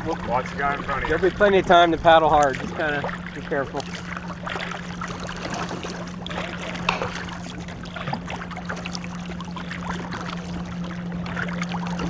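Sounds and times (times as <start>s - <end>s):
canoe paddles splashing: 0.0s - 12.0s
steady low hum: 0.0s - 12.0s
water sloshing along canoe: 0.0s - 12.0s.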